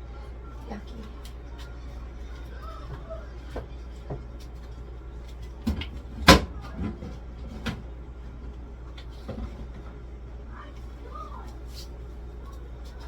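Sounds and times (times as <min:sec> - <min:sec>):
groceries knocking on fridge shelves: 0:05.6 - 0:07.9.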